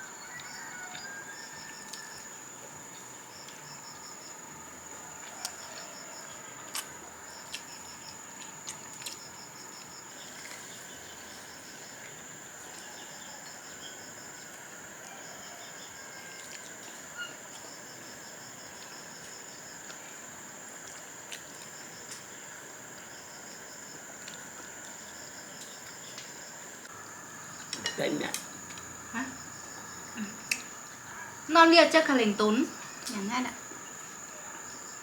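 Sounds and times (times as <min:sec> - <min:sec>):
insects droning: 0:00.0 - 0:35.0
insects pulsing chirps: 0:00.0 - 0:35.0.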